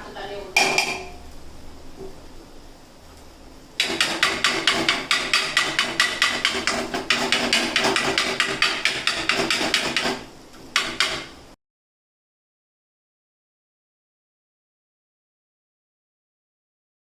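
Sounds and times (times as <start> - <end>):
metal spatulas chopping on griddle: 3.8 - 11.4.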